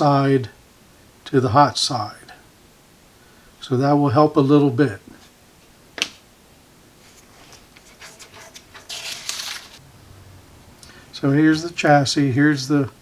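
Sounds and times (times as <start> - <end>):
scraping rustle: 7.0 - 9.8.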